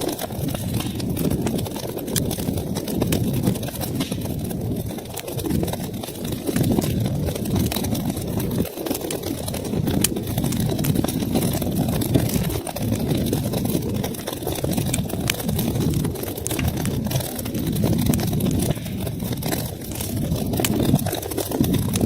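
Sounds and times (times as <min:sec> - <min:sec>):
fire crackling and popping: 0:00.0 - 0:22.0
fire flames rumbling: 0:00.0 - 0:22.0.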